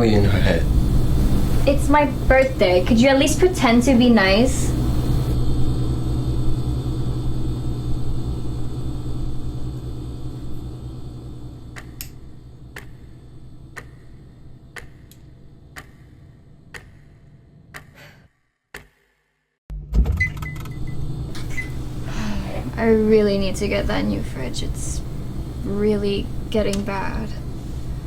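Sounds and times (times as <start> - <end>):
room sound: 0.0 - 5.4
low hum: 0.0 - 17.7, 19.7 - 28.0
clock ticking: 13.8 - 14.0, 14.8 - 16.1, 16.7 - 18.0.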